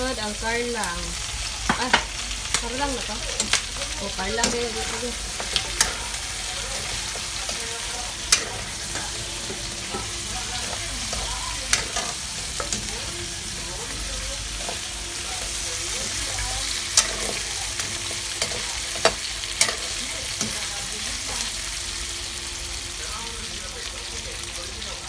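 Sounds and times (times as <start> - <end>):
food sizzling in a wok: 0.0 - 25.0
metal spatula clanking on wok: 4.4 - 13.0, 16.9 - 20.7.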